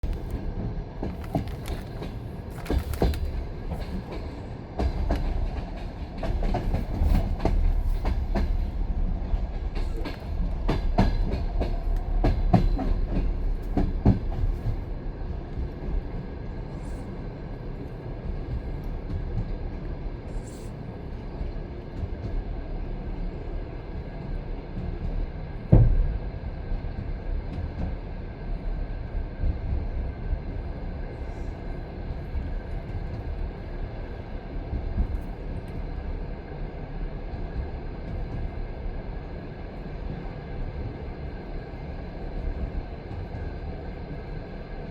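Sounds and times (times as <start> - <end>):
train wheels rumbling on rails: 0.0 - 44.9
wheels knocking at rail joints: 1.0 - 16.0.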